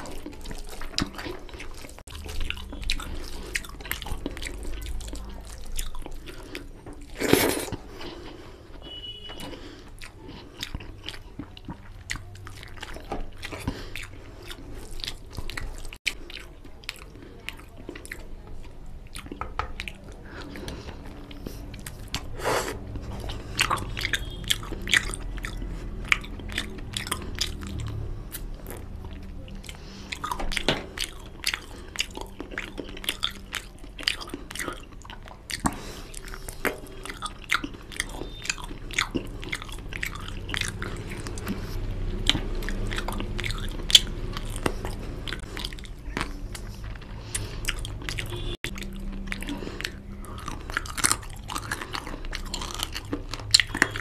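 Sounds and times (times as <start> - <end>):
chewing and biting food: 0.0 - 54.0
wet mouth clicks and smacks: 17.9 - 54.0.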